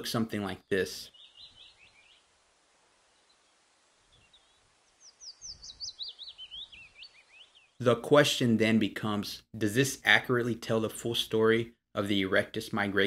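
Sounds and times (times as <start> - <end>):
faint bird chirping: 0.5 - 7.8.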